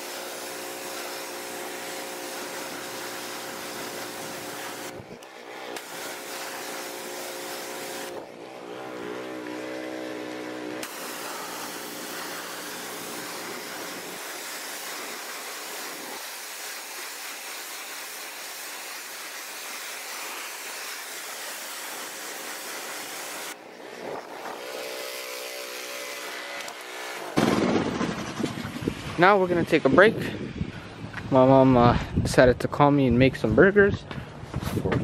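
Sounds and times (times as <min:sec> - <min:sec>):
humming motor: 0:00.0 - 0:19.2, 0:19.8 - 0:27.4
pressure washer spraying water: 0:00.0 - 0:27.6.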